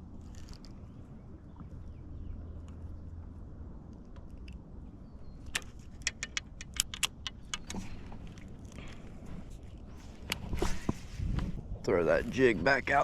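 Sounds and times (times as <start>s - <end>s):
low steady rumble: 0.0s - 13.0s
fishing tackle clicking and rattling: 5.5s - 9.0s.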